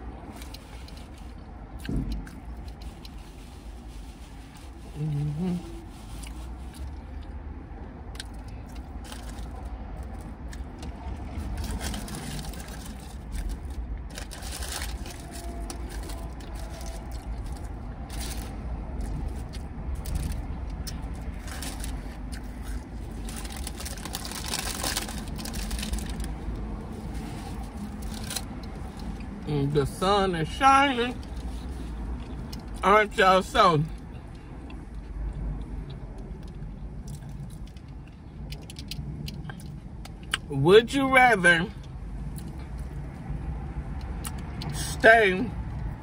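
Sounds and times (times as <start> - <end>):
steady low rumble: 0.0 - 40.6
person chewing crunchy food: 0.1 - 29.4, 31.2 - 32.8, 34.6 - 40.4.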